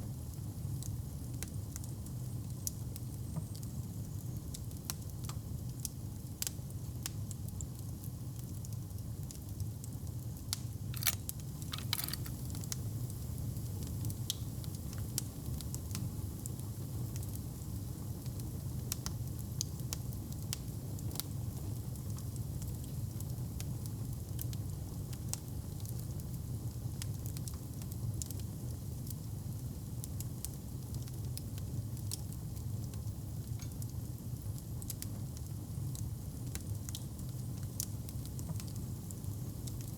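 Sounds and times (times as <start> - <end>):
wood fire crackling: 10.8 - 15.7.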